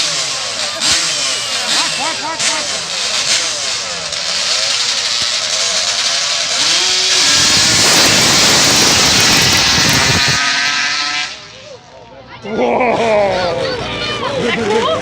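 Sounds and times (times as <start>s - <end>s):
quad bike engine revving: 0.0s - 11.8s.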